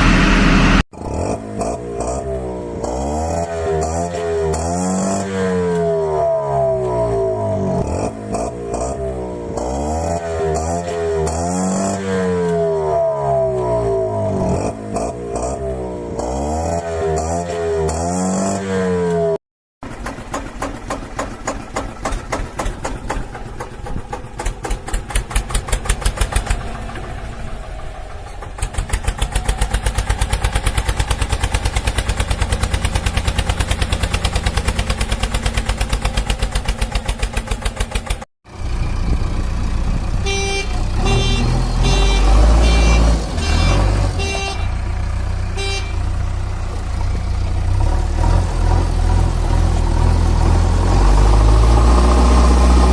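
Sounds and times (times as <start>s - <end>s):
toy horn beeps: 40.2s - 44.9s, 45.5s - 46.1s.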